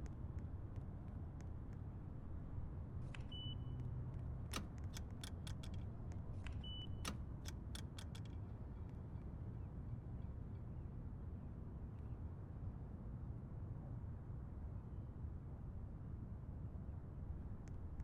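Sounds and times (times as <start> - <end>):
sharp clicks: 4.5 - 5.8, 7.0 - 8.4.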